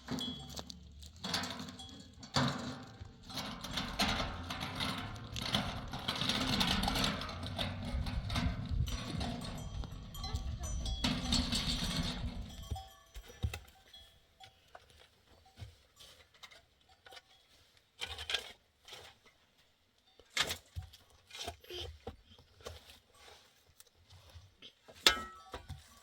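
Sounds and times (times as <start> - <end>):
livestock bells clinking: 0.0 - 5.1, 6.1 - 14.7.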